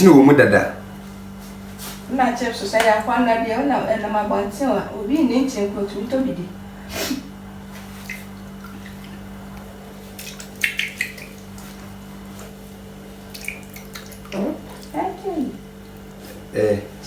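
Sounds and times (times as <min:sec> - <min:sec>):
water splashing in a bowl: 0:07.8 - 0:16.4.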